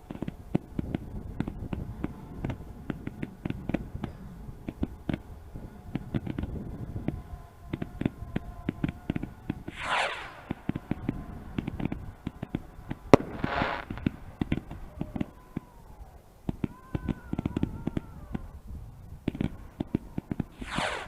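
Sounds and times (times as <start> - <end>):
fireworks crackling pops: 0.0 - 21.0
falling firework whistle: 8.8 - 18.5, 19.3 - 21.0
brief hiss: 9.7 - 10.8, 20.6 - 21.0
loud firework bang: 9.7 - 12.0, 13.1 - 15.3, 20.5 - 21.0.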